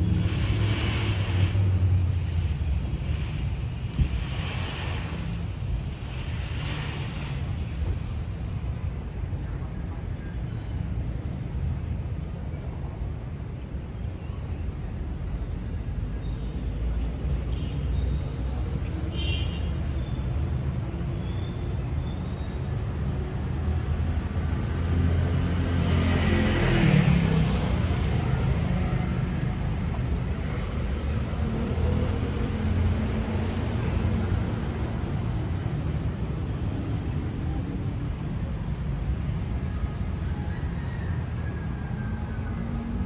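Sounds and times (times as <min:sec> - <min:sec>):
vehicle passing close: 0:00.0 - 0:07.7
traffic rumble: 0:00.0 - 0:43.0.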